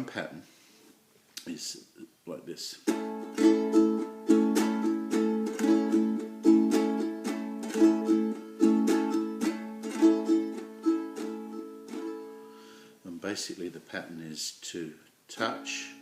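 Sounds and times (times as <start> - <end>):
ukulele strumming: 2.8 - 12.6.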